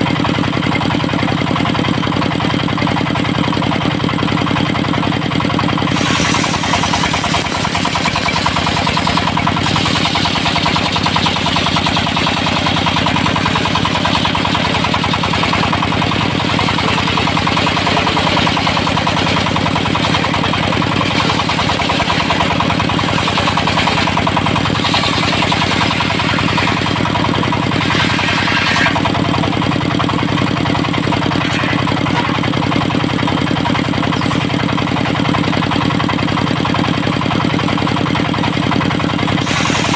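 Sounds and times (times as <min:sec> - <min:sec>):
diesel engine running: 0:00.0 - 0:39.9
circular saw blade hiss: 0:05.9 - 0:07.8.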